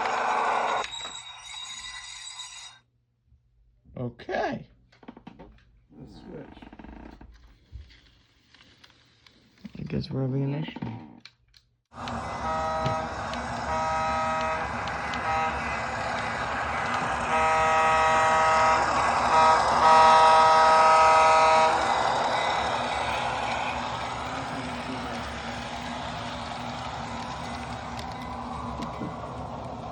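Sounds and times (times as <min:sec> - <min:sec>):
multi-chime train horn: 0:12.0 - 0:22.8
diesel engine running: 0:12.0 - 0:29.9.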